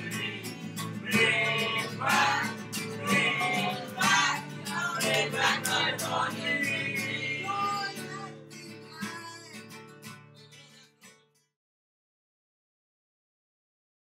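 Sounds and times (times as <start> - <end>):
person singing: 0.0 - 9.8, 10.4 - 11.1
acoustic guitar strumming: 0.0 - 11.3.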